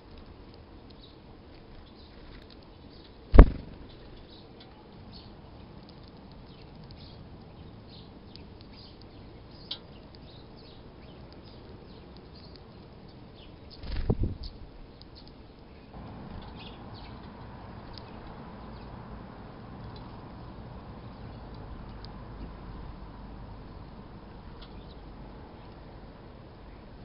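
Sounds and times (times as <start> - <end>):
faint outdoor hiss: 0.0 - 27.0
small birds chirping: 0.0 - 27.0
low thump: 3.4 - 3.9.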